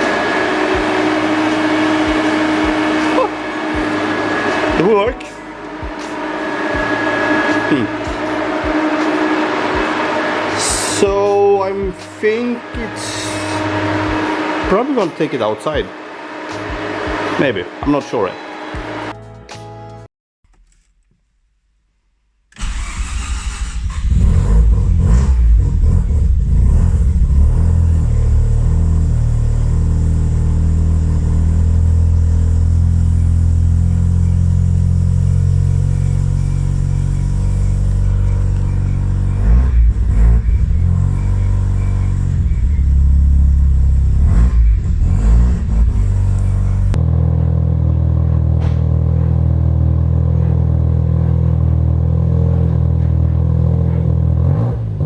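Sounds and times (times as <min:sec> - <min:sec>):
rotary engine running: 0:00.0 - 0:18.0
engine revving: 0:00.0 - 0:19.1, 0:22.6 - 0:55.0.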